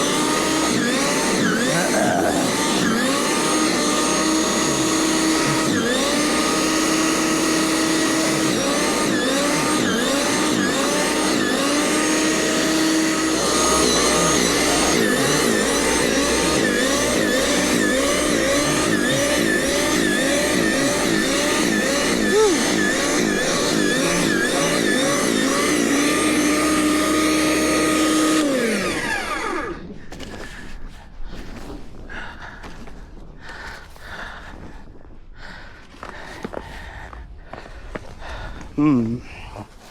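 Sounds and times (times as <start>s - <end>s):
gasoline engine running: 0.0s - 29.8s.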